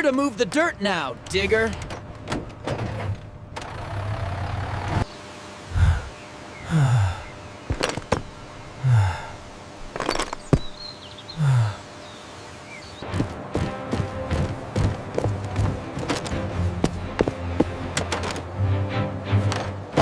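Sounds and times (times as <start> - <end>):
truck engine rumble: 0.2 - 12.0.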